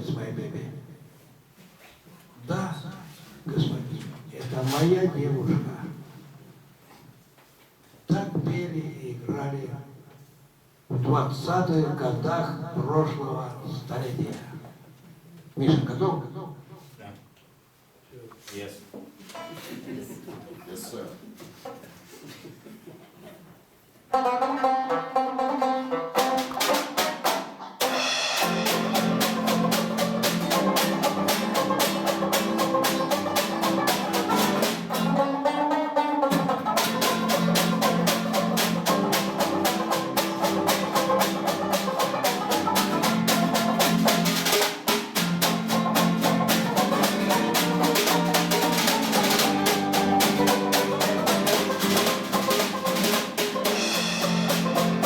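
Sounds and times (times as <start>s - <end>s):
jazz music with drum kit: 24.4s - 55.0s.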